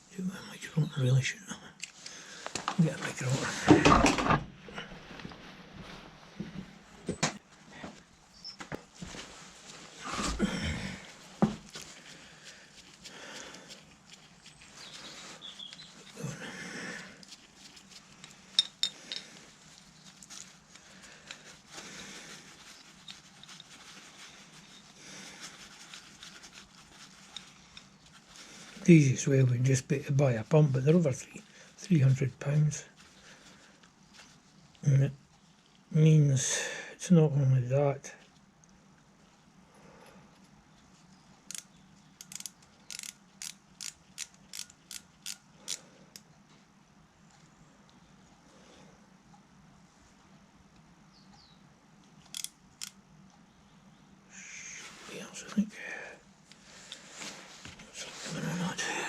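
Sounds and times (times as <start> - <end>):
rustling: 4.6 - 35.9, 56.4 - 59.0
metal parts clicking and clinking: 18.2 - 19.3, 42.2 - 45.8.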